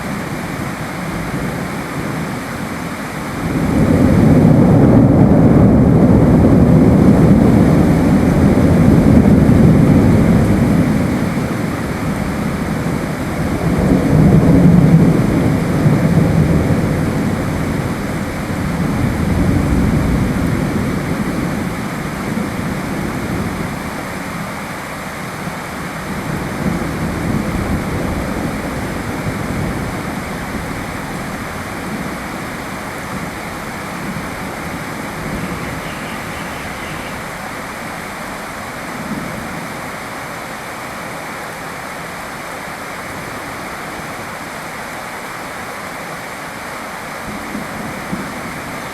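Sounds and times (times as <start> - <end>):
low roll of thunder: 0.0 - 24.5, 25.4 - 39.8
steady rain: 0.0 - 48.9.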